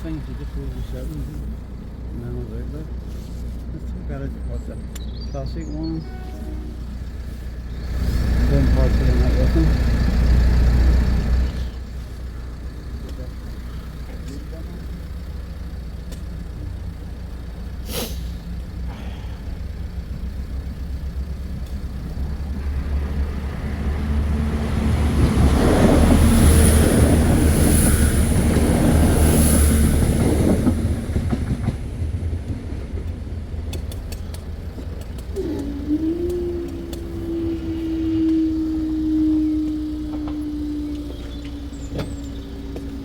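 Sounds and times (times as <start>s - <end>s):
train rumbling past: 0.0s - 43.0s
high-pitched wheel squeals: 35.4s - 43.0s.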